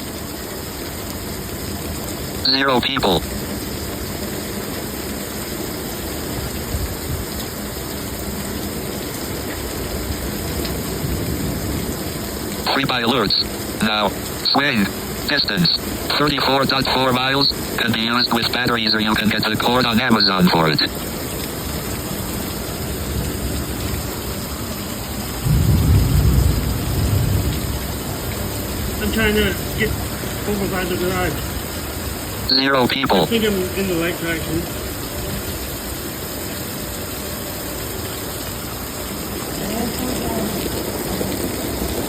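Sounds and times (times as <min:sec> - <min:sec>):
heavy rain pouring: 0:00.0 - 0:42.0
low rumble of thunder: 0:25.4 - 0:29.0.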